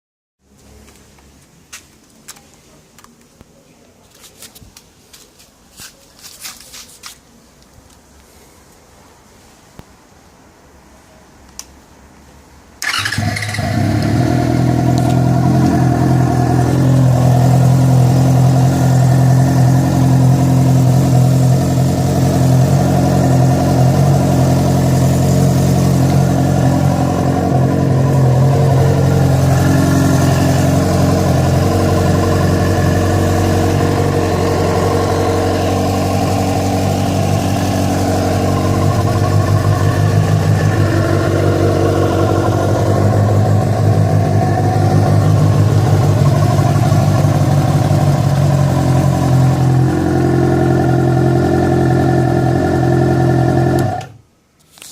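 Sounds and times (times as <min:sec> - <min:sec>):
motorcycle engine running: 0:12.8 - 0:54.2
strange engine noise: 0:12.8 - 0:54.2.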